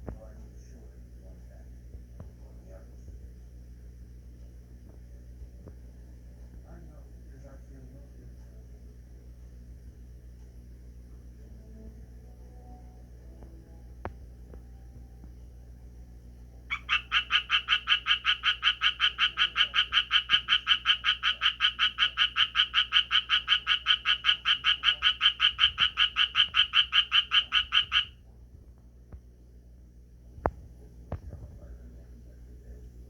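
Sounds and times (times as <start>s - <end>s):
tree frog calling: 16.7s - 28.2s.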